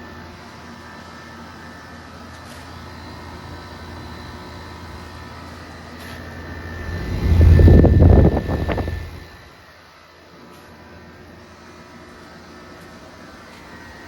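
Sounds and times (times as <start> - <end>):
air conditioner humming: 5.9 - 9.4
loud low rumble: 6.1 - 9.5.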